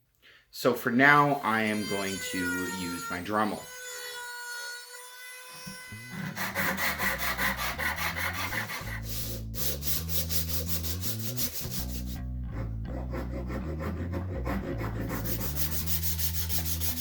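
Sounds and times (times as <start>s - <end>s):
sanding wood by hand: 5.7s - 12.2s, 12.9s - 17.0s.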